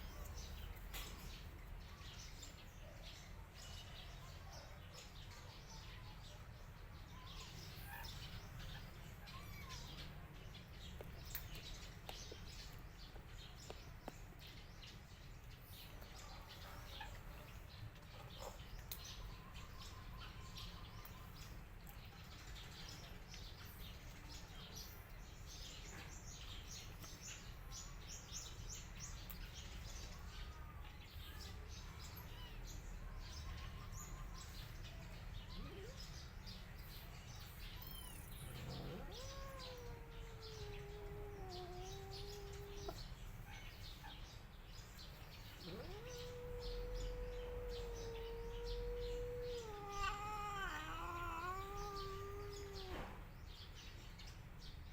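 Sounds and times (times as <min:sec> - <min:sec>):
small birds chirping: 0:00.0 - 0:54.9
cat meowing long: 0:37.8 - 0:43.0, 0:45.6 - 0:53.1.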